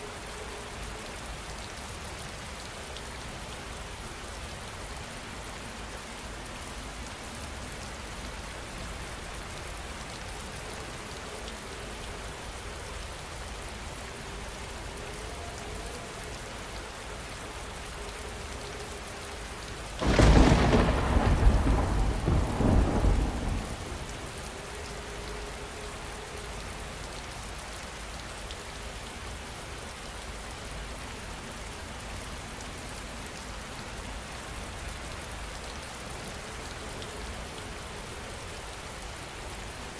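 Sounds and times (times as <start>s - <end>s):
heavy rain falling: 6.5s - 39.9s
loud thunderclap rumbling: 20.0s - 24.2s.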